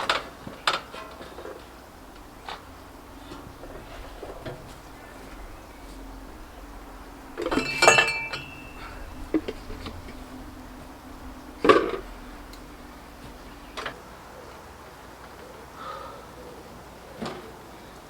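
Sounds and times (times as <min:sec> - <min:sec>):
metallic clinking and clanking: 0:01.4 - 0:14.0
metallic ringing note: 0:01.7 - 0:14.0.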